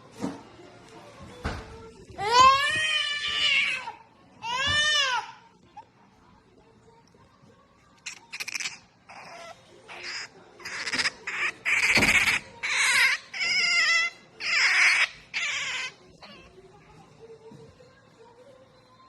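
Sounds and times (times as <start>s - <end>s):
otter squealing and chirping: 8.0s - 16.5s.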